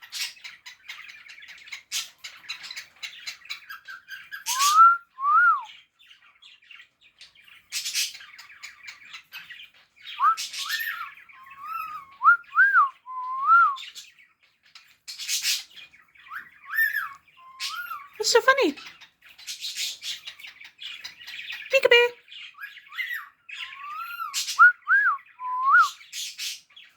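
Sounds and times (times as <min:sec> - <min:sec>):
cockatiel whistling: 0:23.8 - 0:26.0.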